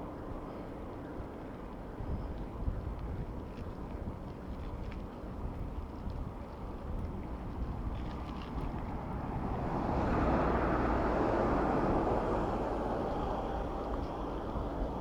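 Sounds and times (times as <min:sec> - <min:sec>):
wind rushing over microphone: 0:07.0 - 0:15.0
road noise: 0:07.6 - 0:15.0.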